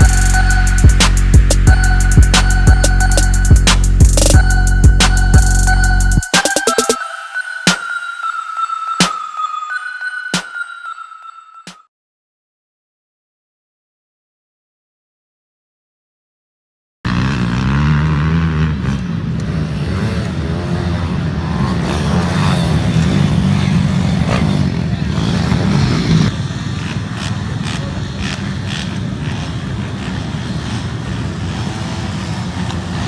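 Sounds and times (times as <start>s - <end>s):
mini bike engines revving: 17.1s - 33.0s.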